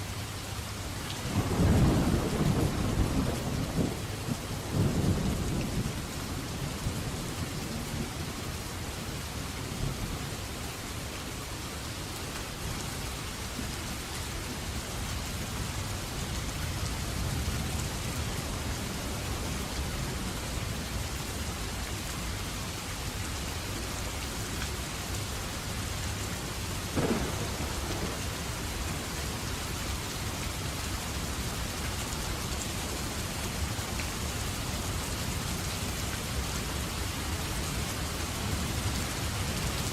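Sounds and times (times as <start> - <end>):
steady rain: 0.0 - 39.9
sharp thunder crack: 27.0 - 28.6
rolling thunder: 27.0 - 29.4.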